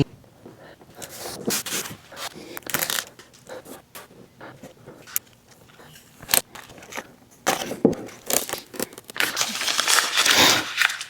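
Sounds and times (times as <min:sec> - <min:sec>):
paper rustling: 0:01.0 - 0:04.1, 0:05.6 - 0:11.0
sticker backing crinkling and tearing: 0:01.0 - 0:04.1, 0:05.0 - 0:11.0.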